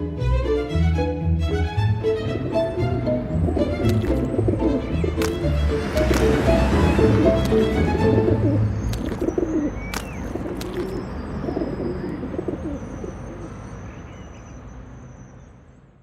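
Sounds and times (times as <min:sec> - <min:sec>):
pigeons cooing: 0:02.3 - 0:13.6
high bird chirps: 0:08.4 - 0:15.6.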